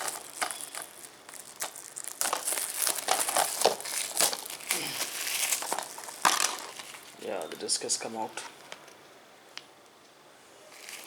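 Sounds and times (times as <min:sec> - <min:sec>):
plastic case crinkling and clicking: 0:00.0 - 0:07.6.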